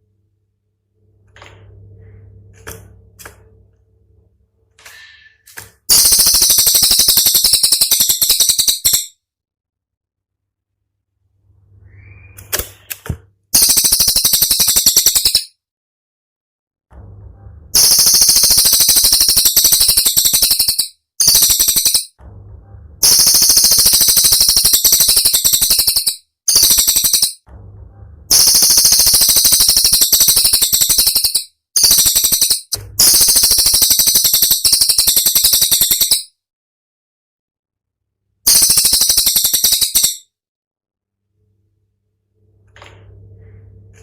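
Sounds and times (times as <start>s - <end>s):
songbird rattling trills: 5.9s - 9.1s, 13.6s - 15.5s, 17.8s - 22.1s, 23.0s - 27.4s, 28.3s - 36.3s, 38.5s - 40.2s.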